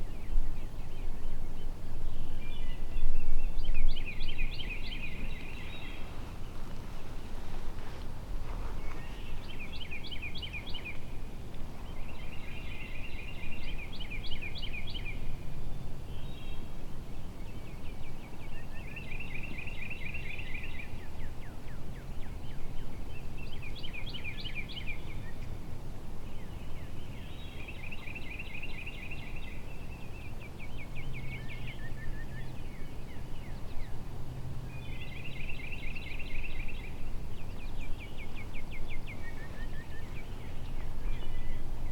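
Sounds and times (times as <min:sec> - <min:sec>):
low wind noise: 0:00.0 - 0:41.9.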